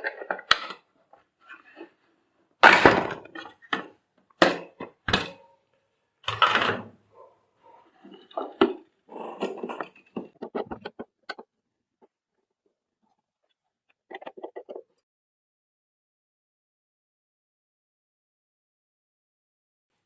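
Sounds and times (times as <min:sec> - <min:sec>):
plastic parts knocking and clattering: 0:00.0 - 0:00.9, 0:02.6 - 0:05.4, 0:08.1 - 0:12.1, 0:14.1 - 0:14.9.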